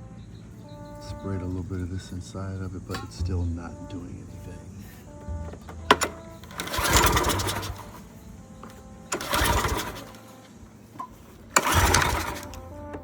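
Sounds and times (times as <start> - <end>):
small engine pull-start cranking: 5.5 - 13.0.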